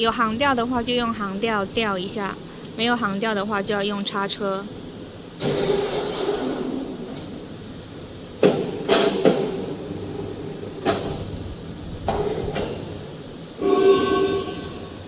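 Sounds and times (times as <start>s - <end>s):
brief pitched tone: 13.6s - 15.0s.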